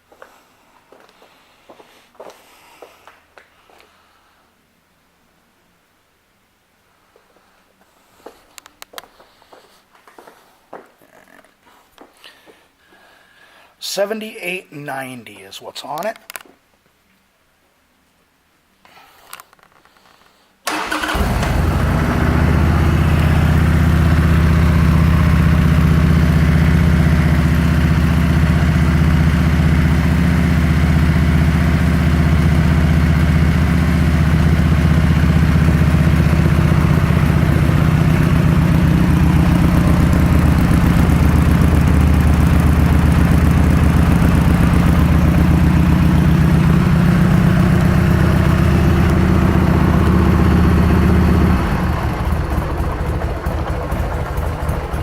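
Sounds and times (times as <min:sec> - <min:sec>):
motorcycle engine starting and idling: 0:20.7 - 0:55.0.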